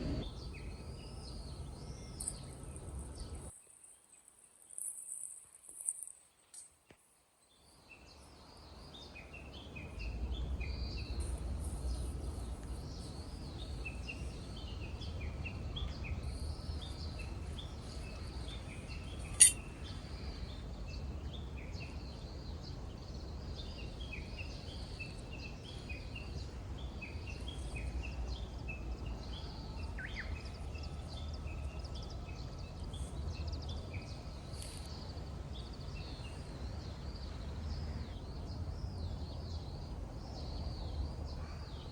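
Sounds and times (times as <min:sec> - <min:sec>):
low steady rumble: 0:00.0 - 0:00.3
small birds chirping: 0:00.0 - 0:04.8, 0:07.5 - 0:30.9
sharp click: 0:19.4 - 0:19.6.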